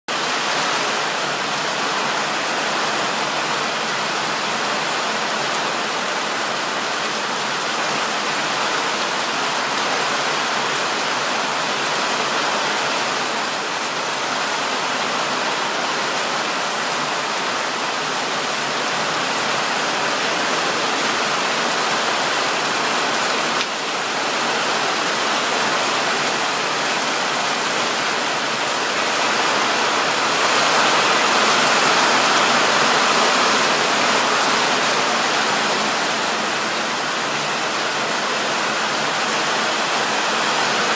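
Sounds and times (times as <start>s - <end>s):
heavy rain falling: 0.1s - 40.9s.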